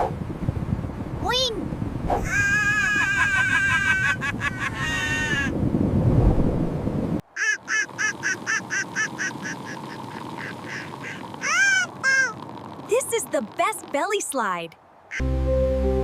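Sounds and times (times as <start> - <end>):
low sliding rumble: 5.6 - 7.2
cartoon quacking calls: 7.4 - 12.4.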